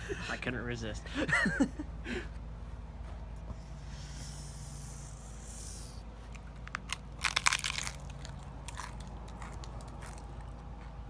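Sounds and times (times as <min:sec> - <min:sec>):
taco shell crunching: 0:06.2 - 0:10.7.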